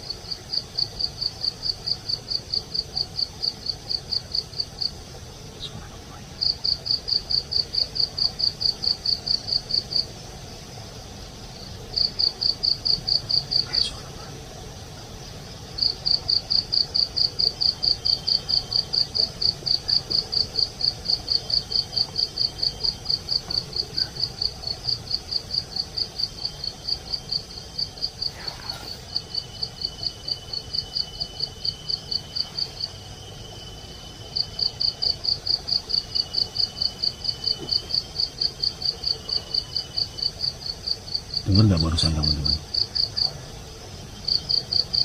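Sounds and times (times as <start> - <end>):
cricket chirping: 0.0 - 45.0
faint insect trills: 0.0 - 45.0.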